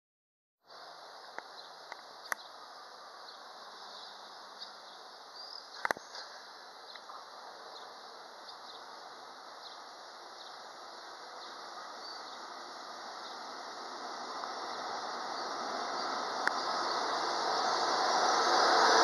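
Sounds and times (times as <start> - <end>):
faint insect chirps: 0.7 - 7.1, 7.8 - 17.6
freight train approaching: 6.4 - 19.0.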